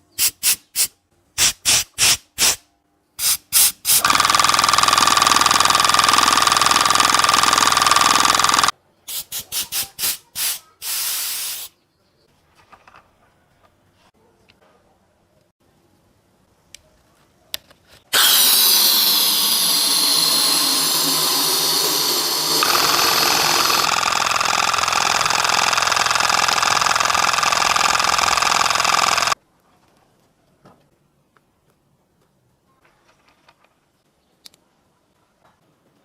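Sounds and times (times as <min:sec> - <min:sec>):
air compressor motor running: 0:03.9 - 0:08.7, 0:18.2 - 0:29.4.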